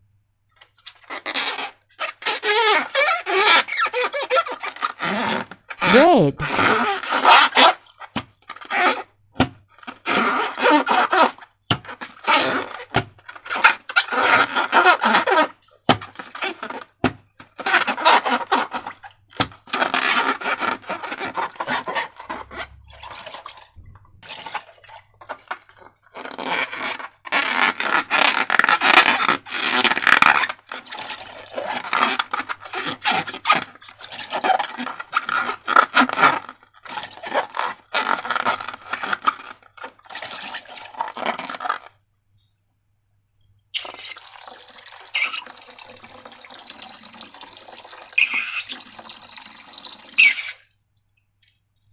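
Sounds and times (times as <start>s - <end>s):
slime squelching: 20.9s - 26.4s, 43.8s - 51.8s.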